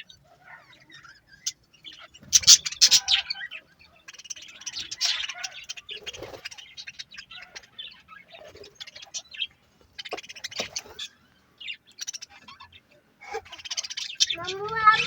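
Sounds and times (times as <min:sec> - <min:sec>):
budgerigars chirping: 0:00.0 - 0:15.0.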